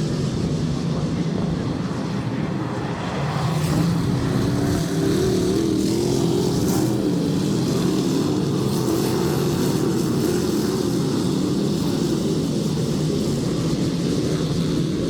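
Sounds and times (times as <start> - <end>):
race car engines at speed: 0.0 - 15.0.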